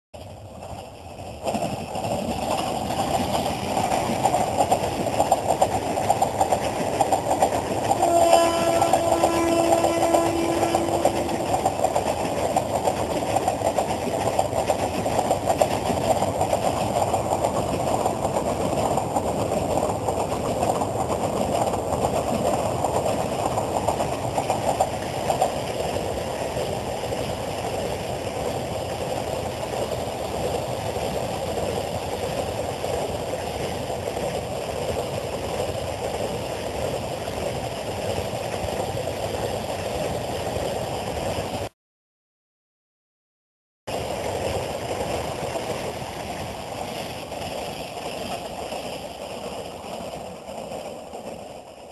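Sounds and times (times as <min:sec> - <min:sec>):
trains rumbling on rails: 0:00.2 - 0:41.7, 0:43.9 - 0:51.9
train horn: 0:07.8 - 0:11.8.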